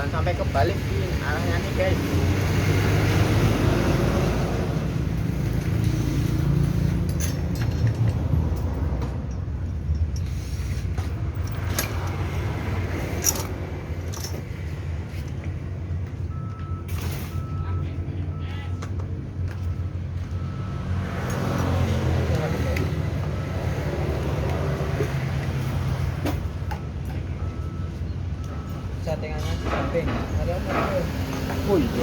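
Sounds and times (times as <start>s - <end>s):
metal clicks and rattles: 6.6s - 10.3s, 13.1s - 14.5s.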